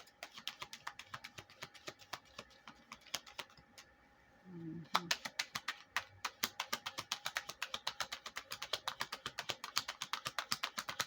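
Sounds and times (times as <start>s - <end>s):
rapid light sharp clicks: 4.9s - 11.0s.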